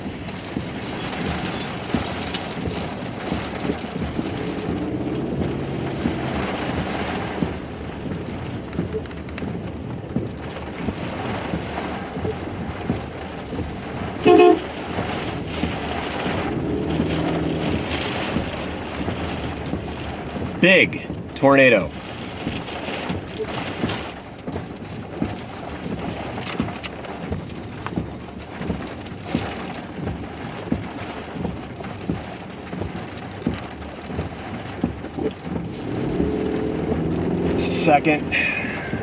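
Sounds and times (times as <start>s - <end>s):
wind-driven rain on vehicle: 0.0s - 39.0s
short loud toot: 14.3s - 14.7s.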